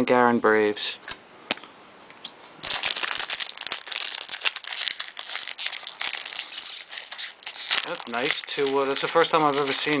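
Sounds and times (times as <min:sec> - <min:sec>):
foil wrapper crinkling: 0:02.6 - 0:10.0.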